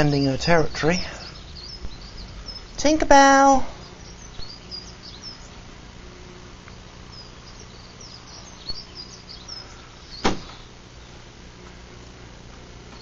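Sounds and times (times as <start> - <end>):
small birds chirping: 0.0 - 13.0
steady low hum: 0.0 - 13.0
sharp knock: 10.2 - 10.6.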